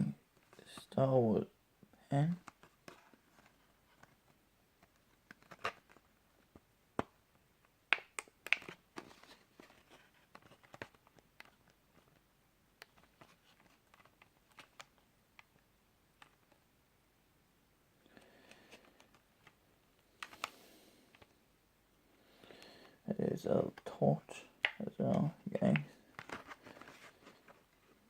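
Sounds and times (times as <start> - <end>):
packaging clicks: 7.9 - 9.8, 20.2 - 21.3.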